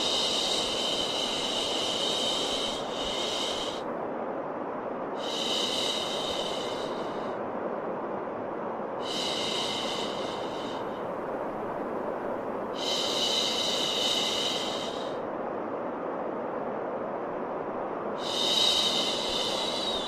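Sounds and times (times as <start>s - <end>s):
white noise hiss: 0.0s - 20.0s.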